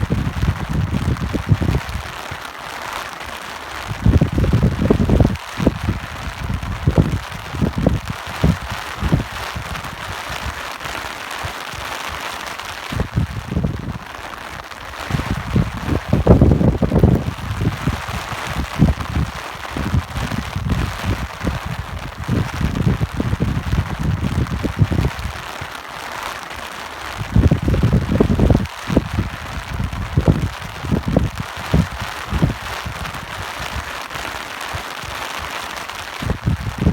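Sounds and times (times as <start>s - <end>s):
wind gusts rumbling: 0.0s - 2.2s, 3.8s - 10.6s, 12.7s - 25.6s, 27.2s - 33.9s, 36.2s - 36.9s
steady rain hiss: 0.0s - 36.9s.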